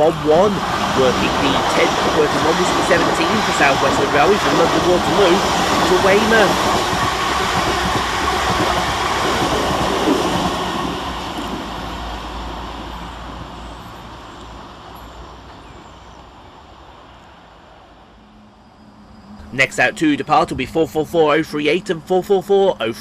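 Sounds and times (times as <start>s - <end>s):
train passing fast: 0.0s - 15.6s.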